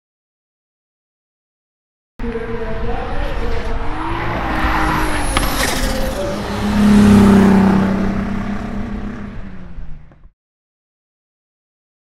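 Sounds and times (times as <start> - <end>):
car engine at high revs: 2.2 - 10.3.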